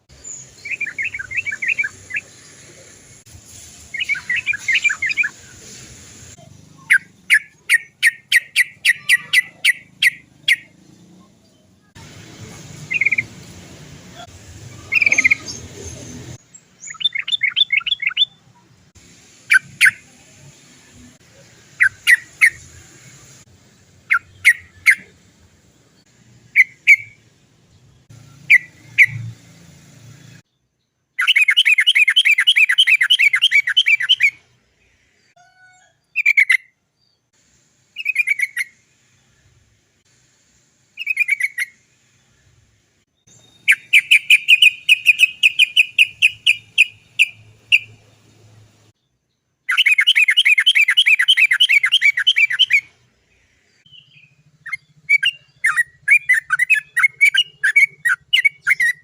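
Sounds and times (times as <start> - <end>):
background hiss: 0.0 - 8.9, 18.6 - 30.5, 36.9 - 49.0
bird calling sharp notes: 0.2 - 2.4, 3.9 - 5.6, 6.7 - 10.8, 12.8 - 13.4, 14.2 - 18.5, 24.0 - 25.2, 31.2 - 34.4, 43.3 - 48.1, 49.7 - 53.0, 53.9 - 59.0.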